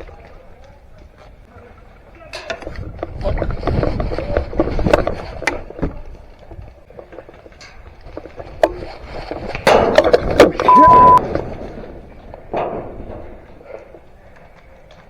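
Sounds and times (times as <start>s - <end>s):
high steady beep: 10.7s - 11.2s.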